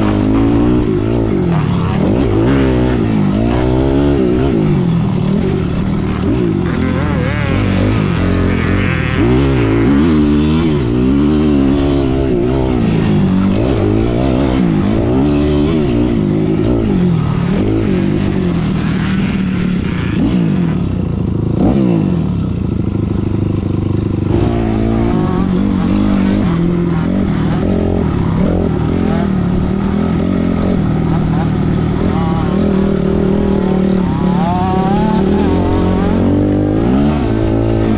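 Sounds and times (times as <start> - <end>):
dirt bike engines revving: 0.0 - 37.9.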